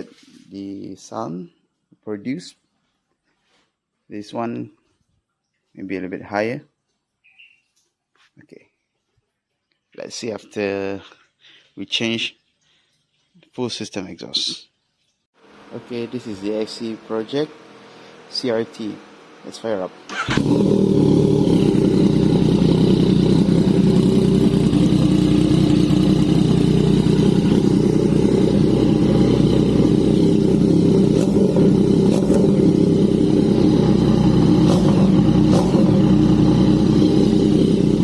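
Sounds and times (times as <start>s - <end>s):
motorcycle engine idling: 20.1s - 38.0s.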